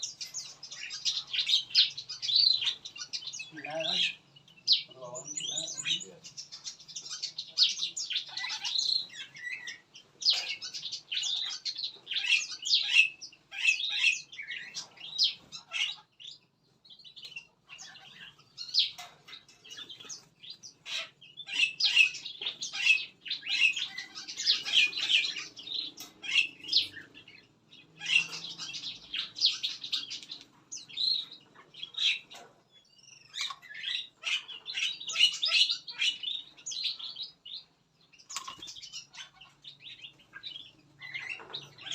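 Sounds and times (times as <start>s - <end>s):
small songbirds chirping: 0.0s - 41.9s.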